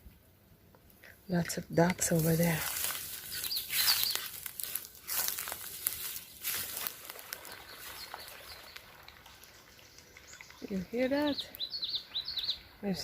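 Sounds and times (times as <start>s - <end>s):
crunching and rustling in undergrowth: 2.0s - 9.8s
faint high bird chirps: 3.2s - 4.4s, 9.6s - 13.0s.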